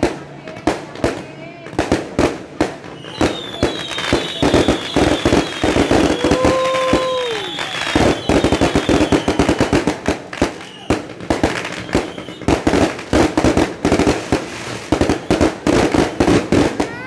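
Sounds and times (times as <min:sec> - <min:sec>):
fireworks bangs and crackling: 0:00.0 - 0:17.0
falling firework whistles: 0:02.8 - 0:13.1, 0:14.2 - 0:16.9.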